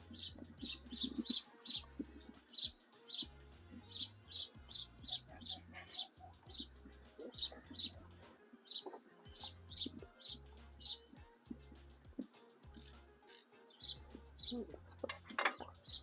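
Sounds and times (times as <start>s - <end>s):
small bird chirping: 0.0s - 11.4s, 12.0s - 16.0s.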